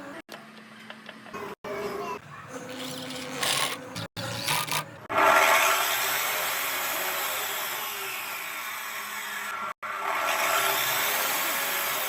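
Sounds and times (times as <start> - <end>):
cut-off saw motor whining: 2.7 - 12.0.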